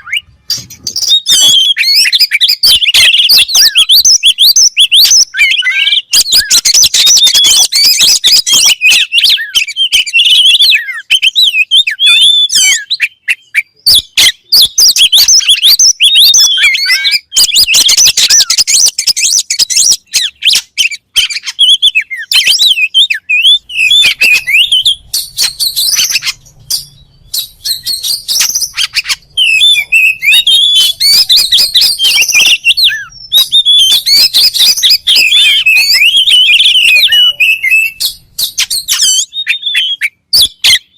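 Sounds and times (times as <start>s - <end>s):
bird singing whistles and clicks: 0.0s - 40.9s.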